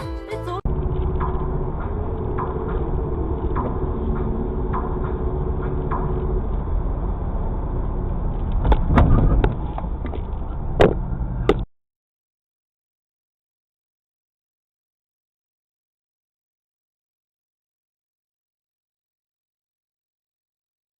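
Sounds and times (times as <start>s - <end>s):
car road and engine rumble: 0.5s - 11.7s
knocks and thuds: 8.6s - 10.2s, 10.8s - 11.7s.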